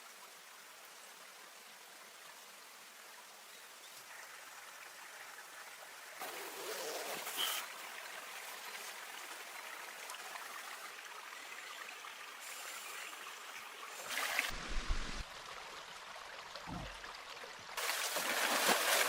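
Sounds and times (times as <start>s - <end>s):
stream water rushing: 5.8s - 19.0s
dull low thumps: 14.5s - 15.2s, 16.7s - 17.0s.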